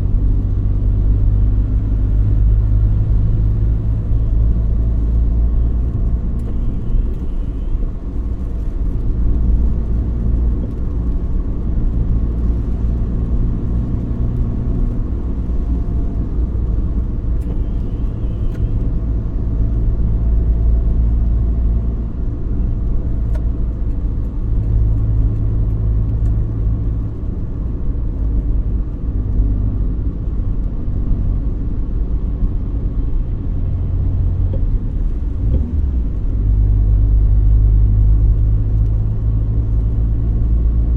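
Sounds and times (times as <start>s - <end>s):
car engine and road rumble: 0.0s - 40.9s.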